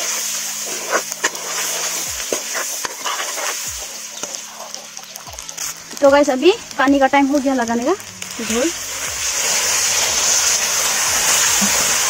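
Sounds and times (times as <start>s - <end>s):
food sizzling in hot oil: 0.0s - 12.0s
metal spatula scraping a pan: 0.6s - 4.9s.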